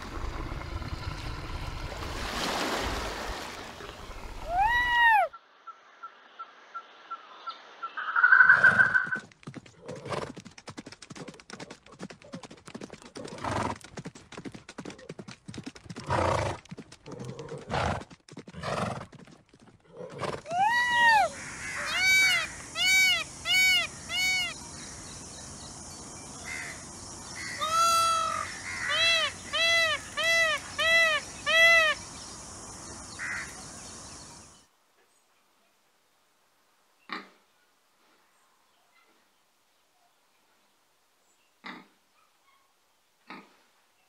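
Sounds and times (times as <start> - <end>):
horse hooves clip-clopping: 8.8 - 20.5
peacock calling: 20.5 - 25.0, 26.4 - 32.1.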